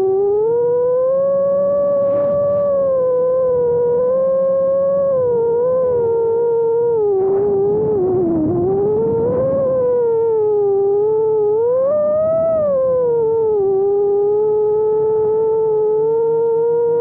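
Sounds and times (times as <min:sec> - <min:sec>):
quadcopter motors whining: 0:00.0 - 0:17.0
rough rushing noise: 0:01.9 - 0:04.1.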